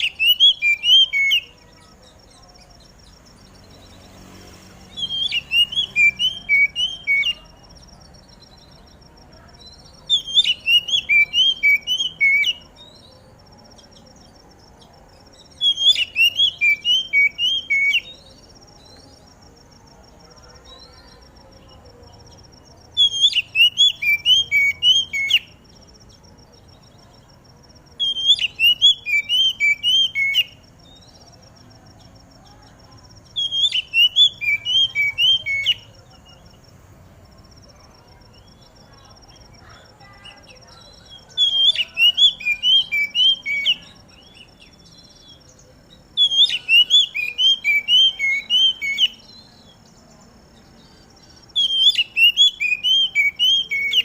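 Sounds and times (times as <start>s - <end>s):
bird whistling song: 0.0s - 4.0s, 4.9s - 14.6s, 15.3s - 19.1s, 22.4s - 25.7s, 28.0s - 31.2s, 33.2s - 36.5s, 40.2s - 54.0s
faint high-pitched chirring: 0.0s - 54.0s.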